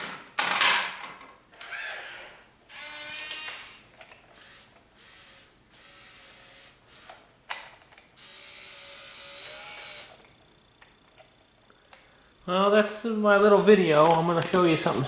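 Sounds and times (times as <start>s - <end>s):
small electric motors whirring: 1.6s - 7.6s, 8.2s - 11.3s.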